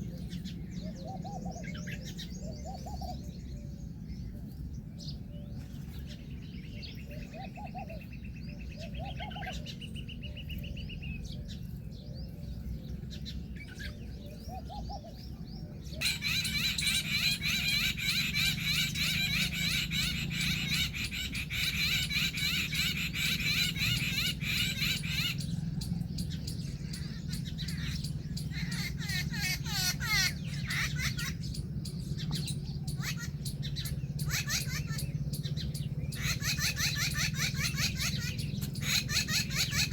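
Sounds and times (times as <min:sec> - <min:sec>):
birds chirping and chattering: 0:00.0 - 0:39.9
bird trilling: 0:13.2 - 0:39.9.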